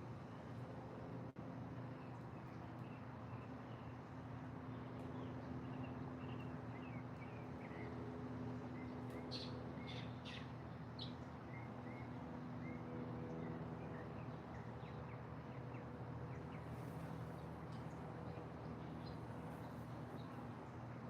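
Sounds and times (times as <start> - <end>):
small birds chirping: 8.8 - 12.8.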